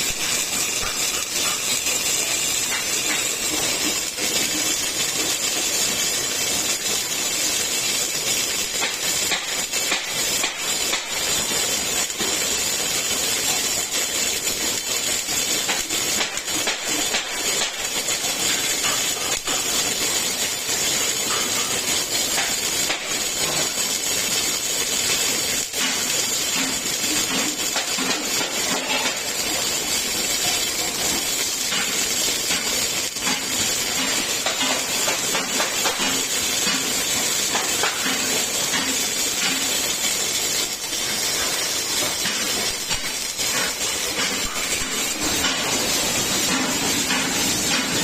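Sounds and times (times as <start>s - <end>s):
welding hissing crackle: 0.0s - 48.0s.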